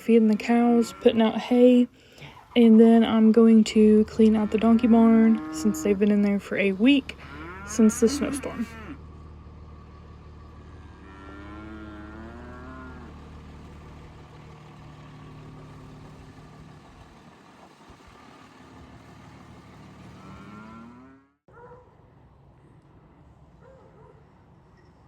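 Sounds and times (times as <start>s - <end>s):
low engine hum: 0.0s - 21.4s
cattle mooing: 0.6s - 1.4s, 4.1s - 6.3s, 7.0s - 9.0s, 10.8s - 13.2s, 20.1s - 21.3s.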